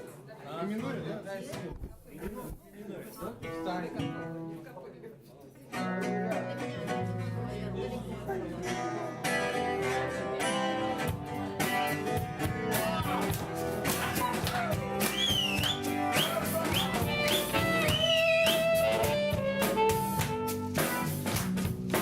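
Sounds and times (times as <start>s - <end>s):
guitar: 3.3s - 4.8s, 5.6s - 22.0s
drums: 10.4s - 22.0s.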